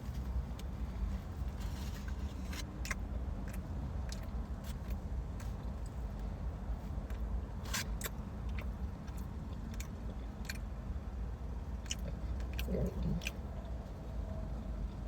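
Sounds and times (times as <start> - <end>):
low steady hum: 0.0 - 15.0
person chewing crunchy food: 1.6 - 15.0
wet mouth clicks: 11.7 - 13.6.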